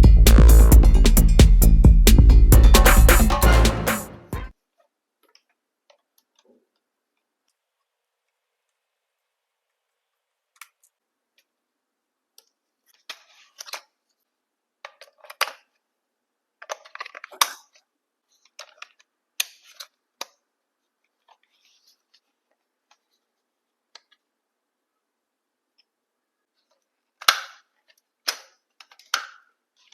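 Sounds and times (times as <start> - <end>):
plastic clicks: 26.6 - 29.9.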